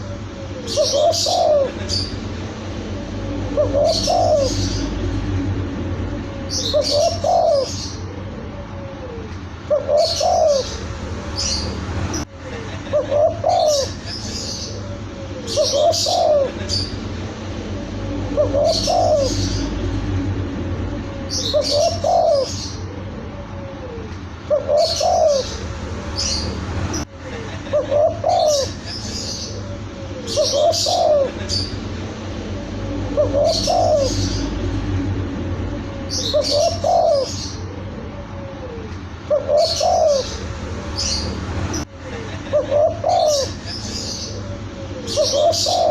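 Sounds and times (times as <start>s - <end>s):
dove cooing: 0.0s - 11.7s, 12.8s - 26.5s, 27.6s - 41.3s, 42.4s - 45.9s
small birds chirping: 0.0s - 45.9s.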